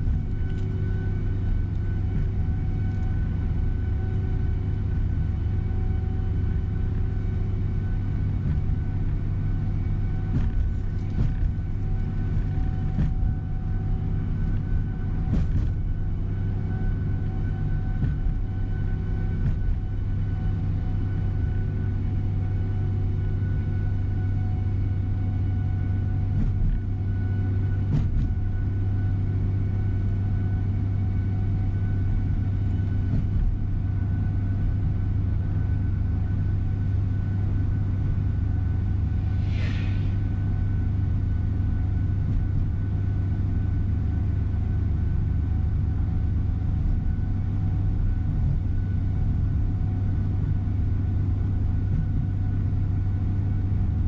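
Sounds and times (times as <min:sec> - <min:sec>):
bus engine and road rumble: 0:00.0 - 0:54.0
short hiss: 0:39.4 - 0:40.3.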